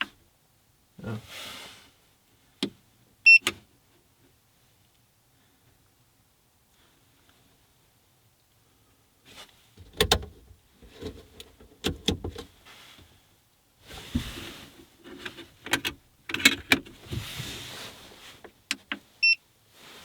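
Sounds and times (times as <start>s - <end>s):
clicks and knocks of handling: 15.1s - 17.0s.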